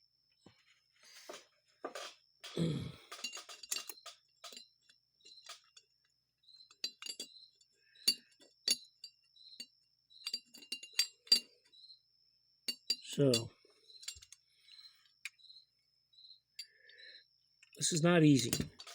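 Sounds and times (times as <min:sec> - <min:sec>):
small metal parts clinking: 0:01.2 - 0:11.8, 0:12.7 - 0:15.4, 0:17.6 - 0:18.9.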